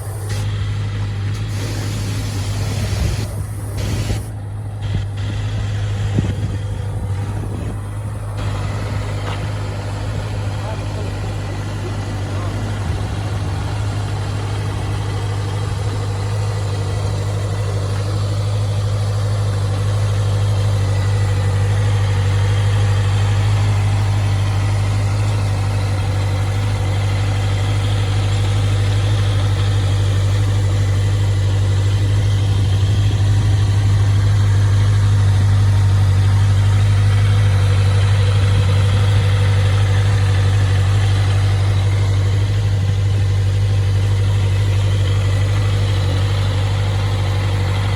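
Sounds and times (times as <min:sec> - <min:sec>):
motorcycle engine idling: 0:00.0 - 0:47.9.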